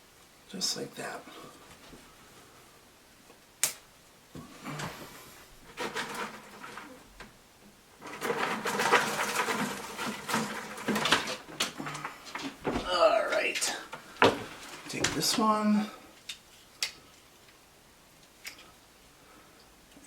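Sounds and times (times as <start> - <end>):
twigs rustling and scraping: 8.0 - 15.7.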